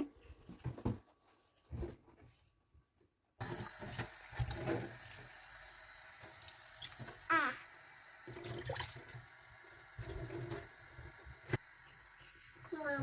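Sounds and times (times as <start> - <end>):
water running into sink: 3.4 - 13.0
water tap turned on: 3.4 - 13.0.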